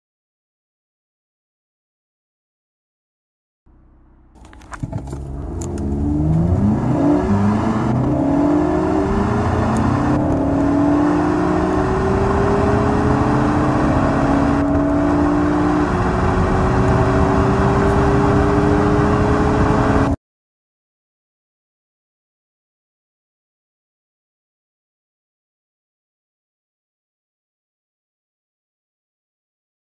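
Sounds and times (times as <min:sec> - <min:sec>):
car engine accelerating hard: 0:03.7 - 0:20.2.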